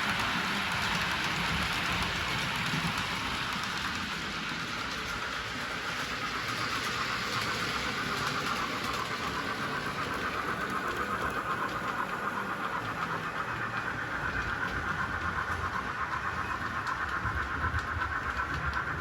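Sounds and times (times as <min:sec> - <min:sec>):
model train motor whir: 0:00.0 - 0:19.0
wheels on track: 0:00.0 - 0:19.0.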